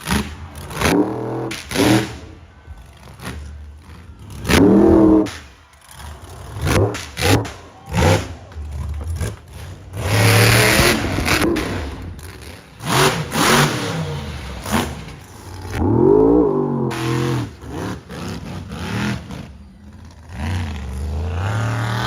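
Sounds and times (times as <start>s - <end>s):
monster truck engine revving: 0.0s - 22.0s.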